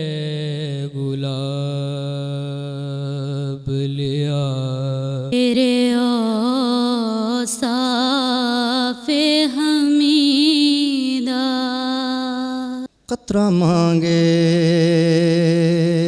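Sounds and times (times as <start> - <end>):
person chanting: 0.0 - 16.0.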